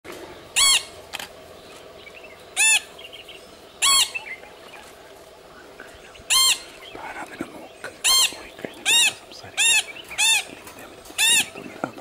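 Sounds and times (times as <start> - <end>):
harsh nasal bird calls: 0.3 - 12.0
faint bird chirps: 5.7 - 12.0.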